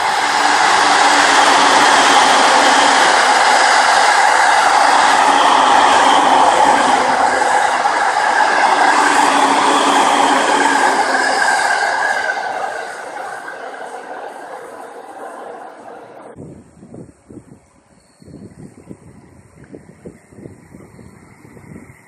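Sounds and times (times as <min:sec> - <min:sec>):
drawn-out tones: 0:00.0 - 0:16.4
train running by: 0:00.0 - 0:16.4.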